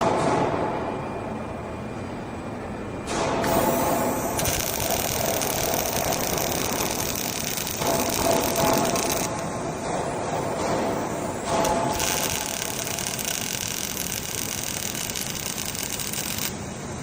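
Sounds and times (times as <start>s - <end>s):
welding arc crackling: 3.5s - 9.6s, 11.4s - 16.7s.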